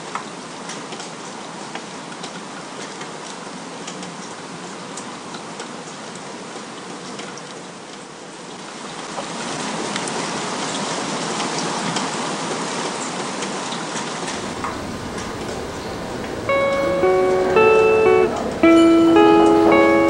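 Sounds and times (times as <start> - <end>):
steady rain hissing: 7.8 - 20.0.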